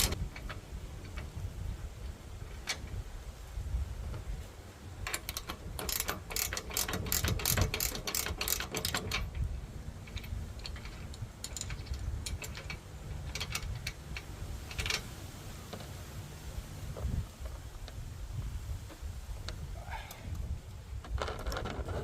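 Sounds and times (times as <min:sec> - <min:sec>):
hand tool clicking on metal: 0:05.0 - 0:09.4, 0:10.1 - 0:15.1.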